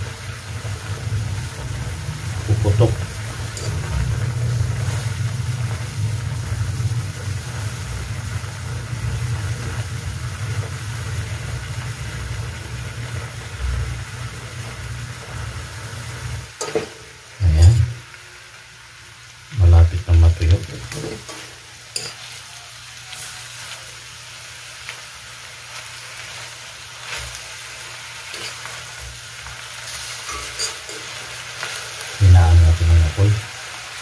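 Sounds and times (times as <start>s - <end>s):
sausages sizzling in a wok: 0.0s - 34.0s
low steady hum: 16.6s - 18.0s, 32.2s - 33.4s
metal spoon stirring and scraping: 20.9s - 22.4s, 28.3s - 31.4s.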